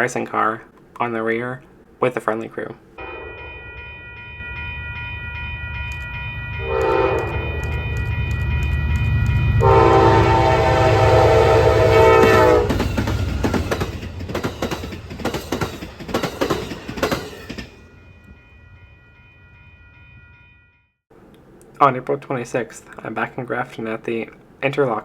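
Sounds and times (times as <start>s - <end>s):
diesel locomotive engine rumble: 3.0s - 20.3s
train wheel clicks: 5.8s - 6.2s, 6.8s - 9.5s, 12.7s - 17.7s
train horn blast: 6.6s - 8.0s, 9.6s - 12.8s.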